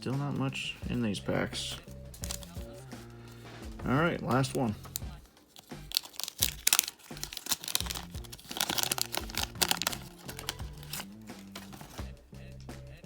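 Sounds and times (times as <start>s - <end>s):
background music: 0.0s - 13.0s
wrapper crinkling and tearing: 2.2s - 2.6s, 4.8s - 12.0s.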